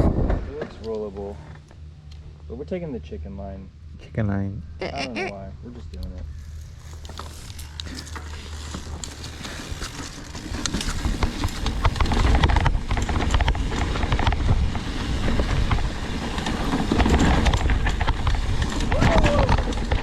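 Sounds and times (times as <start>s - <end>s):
bike knocking and clattering: 6.1s - 20.0s
tyres rolling over rock: 6.2s - 20.0s.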